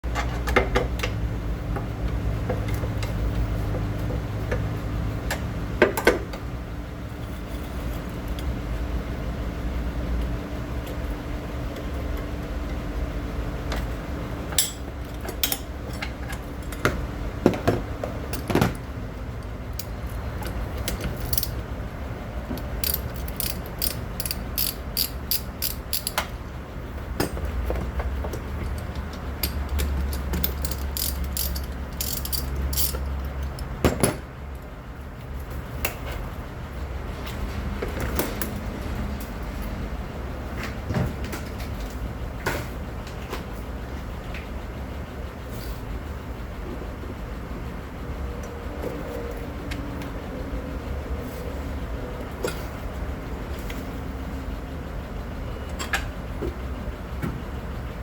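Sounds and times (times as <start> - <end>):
steady low hum: 0.0 - 58.0
ratchet wrench clicking: 19.7 - 21.6, 22.6 - 26.4, 28.6 - 33.7
metal tools clinking: 20.8 - 21.6, 22.6 - 26.2, 28.3 - 34.2.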